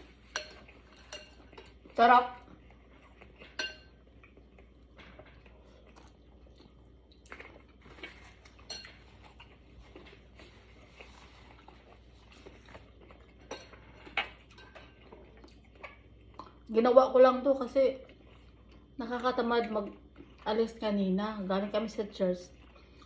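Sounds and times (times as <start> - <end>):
utensils clinking on soup bowl: 0.0 - 1.9, 3.3 - 4.0, 8.0 - 10.1, 13.2 - 15.2.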